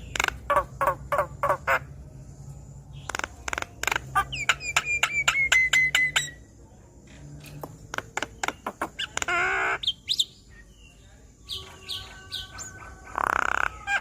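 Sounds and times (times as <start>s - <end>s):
bird clicks and whistles: 3.1s - 6.4s
harsh rasping bird call: 11.5s - 14.0s.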